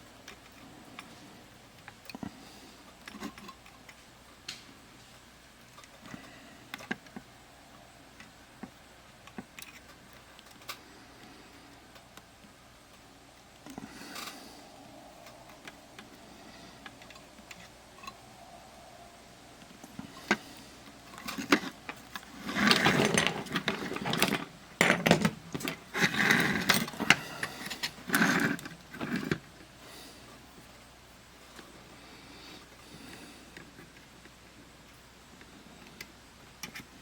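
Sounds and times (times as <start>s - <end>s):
small tools clicking and tapping: 0.1s - 7.3s, 8.1s - 14.6s, 19.6s - 29.7s.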